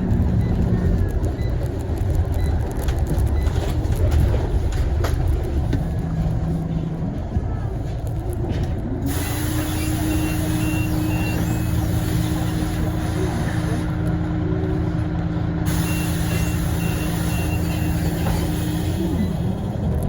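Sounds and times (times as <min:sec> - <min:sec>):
bus diesel engine: 0:00.0 - 0:20.0
high beeps: 0:09.8 - 0:11.9, 0:15.7 - 0:18.5.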